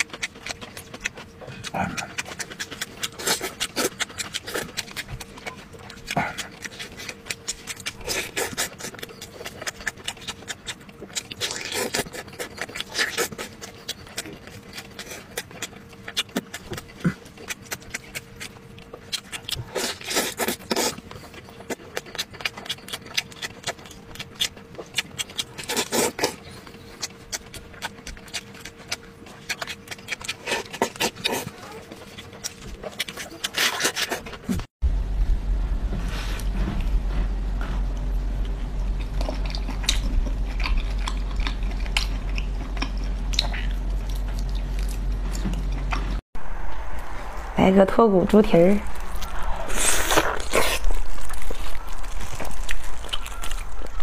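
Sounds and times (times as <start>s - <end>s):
biting and sucking: 0.0s - 34.7s, 48.8s - 54.0s
wet chewing and lip-smacking: 0.0s - 34.7s, 38.4s - 46.2s, 48.8s - 54.0s
faint steady hum: 0.0s - 54.0s.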